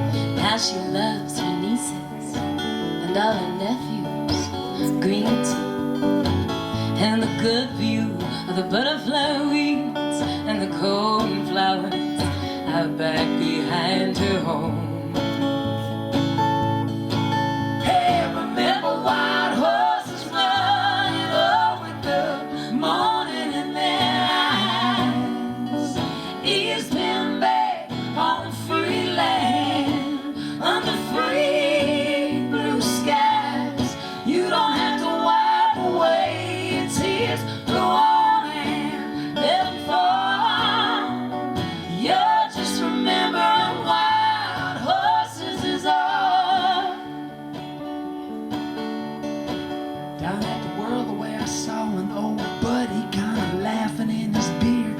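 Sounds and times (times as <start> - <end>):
strummed acoustic guitar: 0.0 - 54.9
person singing with vibrato: 17.8 - 47.5.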